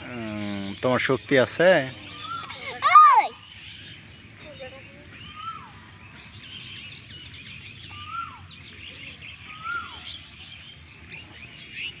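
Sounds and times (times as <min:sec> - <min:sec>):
birds chirping and twittering: 0:00.0 - 0:12.0
bird whistled call: 0:02.1 - 0:03.5, 0:05.2 - 0:05.8, 0:07.6 - 0:08.7, 0:09.3 - 0:10.3.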